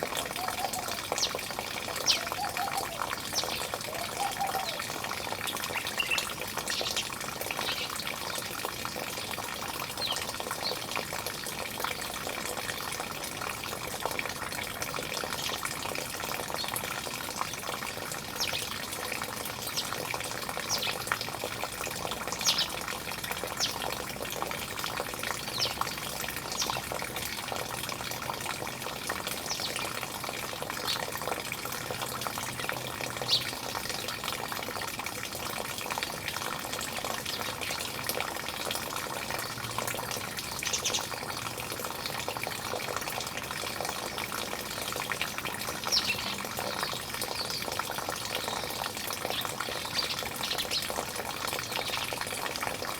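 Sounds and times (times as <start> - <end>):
running water: 0.0 - 52.9.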